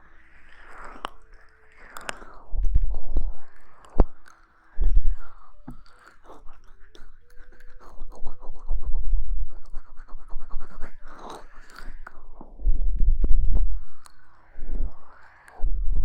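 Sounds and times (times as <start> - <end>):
soft low thumps: 12.4 - 14.0, 15.6 - 16.0.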